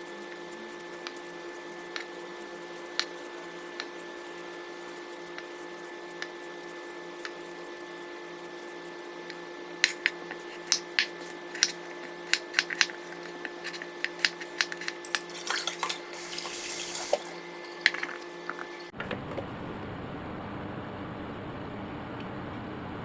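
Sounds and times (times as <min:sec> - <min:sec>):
tap running: 0:00.0 - 0:19.4
dishes and utensils clinking: 0:09.2 - 0:18.9.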